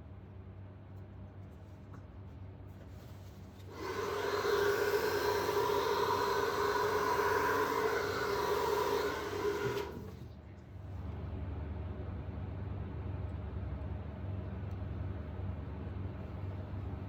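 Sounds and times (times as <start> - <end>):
hair dryer whirring: 3.7 - 10.2.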